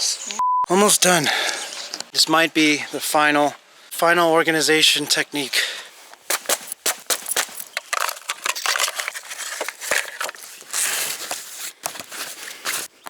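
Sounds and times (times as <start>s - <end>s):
camping gear clicks and knocks: 6.1s - 13.0s
rustling of gear: 6.1s - 13.0s.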